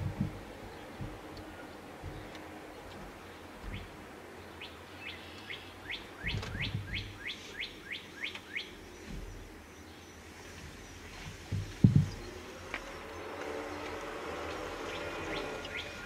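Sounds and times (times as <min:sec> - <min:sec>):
low thump: 0:03.6 - 0:04.0, 0:06.2 - 0:07.1, 0:11.5 - 0:12.2
songbird whistling: 0:04.6 - 0:08.7.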